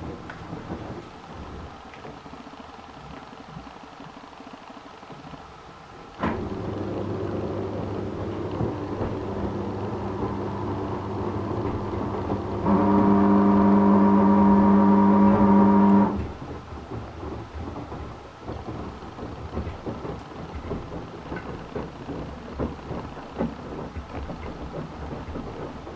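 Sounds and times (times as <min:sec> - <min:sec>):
washing machine humming: 0:00.0 - 0:25.9
loud droning hum: 0:06.2 - 0:16.4
rumbling and sloshing: 0:06.2 - 0:25.9.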